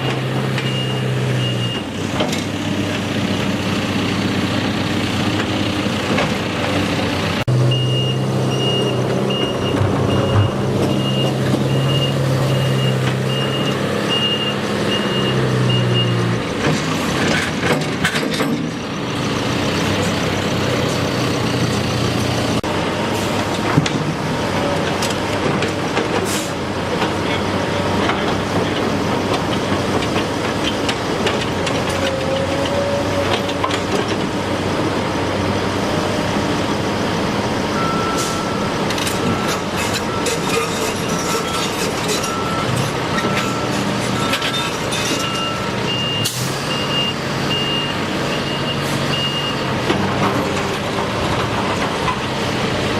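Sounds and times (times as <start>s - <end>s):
heavy machinery running: 0.0s - 52.9s
reversing alarm beeping: 0.6s - 1.9s, 7.7s - 16.2s, 37.8s - 49.7s
high-pitched backup beeper: 7.7s - 16.2s.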